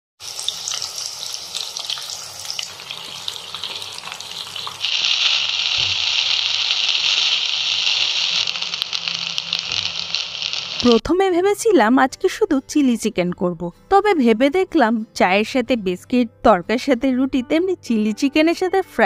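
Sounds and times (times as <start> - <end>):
chicken deep-frying in bubbling oil: 0.2 - 11.0
fried rice sizzling in pan: 0.2 - 11.0.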